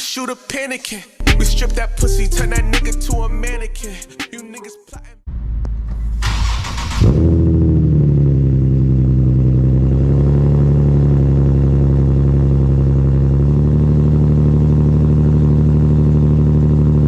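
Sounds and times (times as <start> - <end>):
car engine starting and idling: 5.3 - 17.0.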